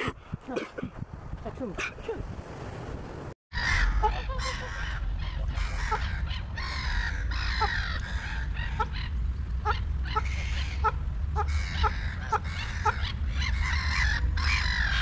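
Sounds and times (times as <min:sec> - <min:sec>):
flock of birds calling harshly: 0:03.6 - 0:15.0.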